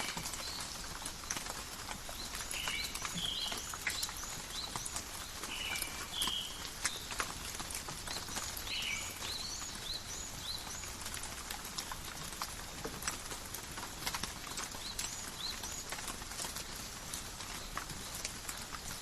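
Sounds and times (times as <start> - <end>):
light rain falling: 0.0 - 19.0
raindrops tapping: 0.0 - 19.0
bird chirping: 2.2 - 7.1, 8.1 - 10.9.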